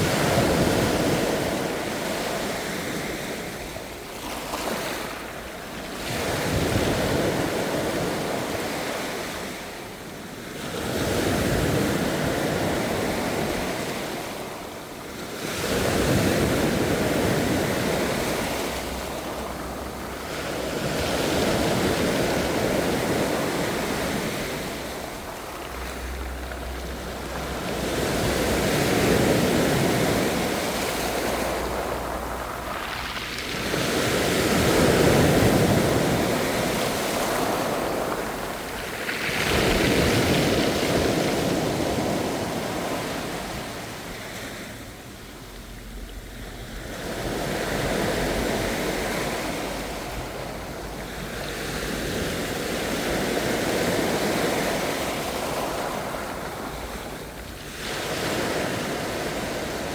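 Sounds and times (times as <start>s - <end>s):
ocean waves breaking on shore: 0.0s - 59.9s.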